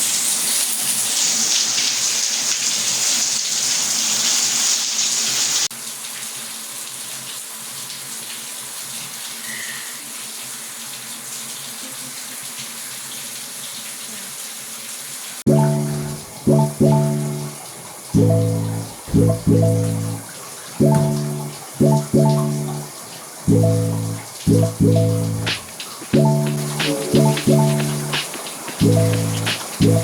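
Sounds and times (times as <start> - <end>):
music notes: 15.5 - 30.0.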